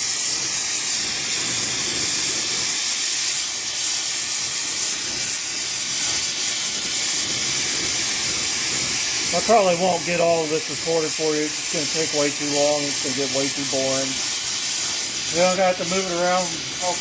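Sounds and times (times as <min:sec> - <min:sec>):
torch flame hissing: 0:00.0 - 0:17.0.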